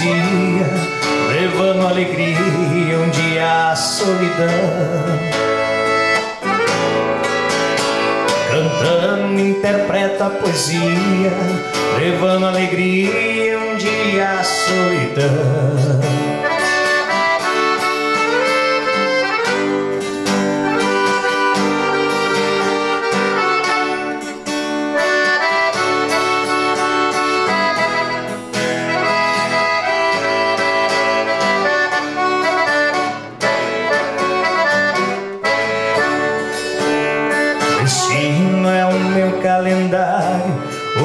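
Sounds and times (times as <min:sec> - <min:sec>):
accordion melody: 0:00.0 - 0:41.0
plucked acoustic guitar: 0:00.0 - 0:41.0.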